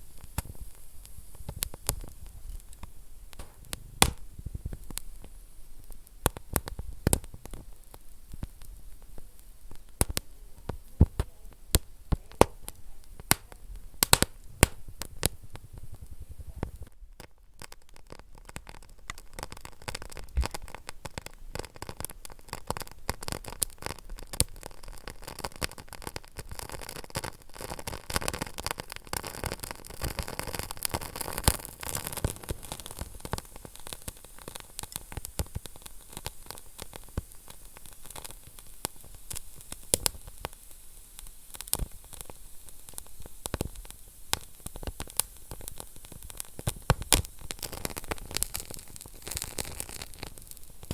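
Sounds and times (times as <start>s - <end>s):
fire hissing: 0.0s - 17.0s, 19.0s - 50.9s
wood fire crackling and popping: 0.0s - 50.9s.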